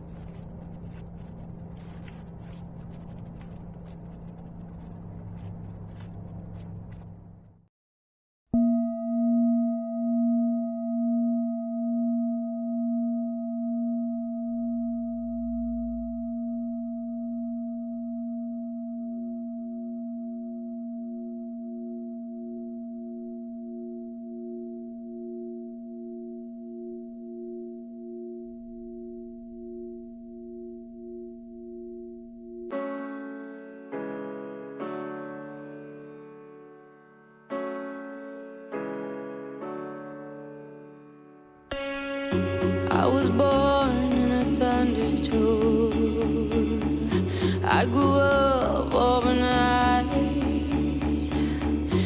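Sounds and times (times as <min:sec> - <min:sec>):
struck bell-like tone ringing: 0:08.6 - 0:32.7.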